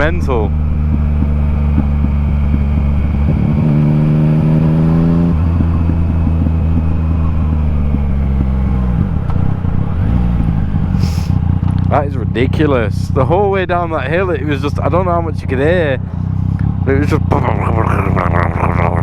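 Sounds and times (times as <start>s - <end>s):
exhaust pops and crackles: 0.0s - 10.8s, 11.4s - 12.0s
motorcycle engine on the overrun: 0.0s - 19.0s.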